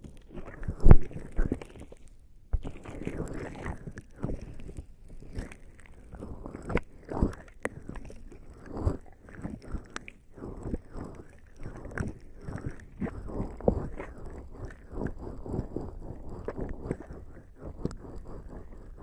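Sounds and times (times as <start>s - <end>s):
wet skin squelching on microphone: 0.1s - 19.0s.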